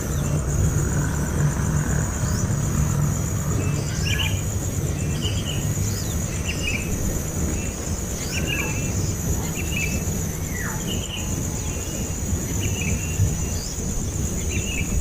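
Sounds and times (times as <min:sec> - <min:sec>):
low rumble: 0:00.0 - 0:07.9
insect trill: 0:00.0 - 0:15.0.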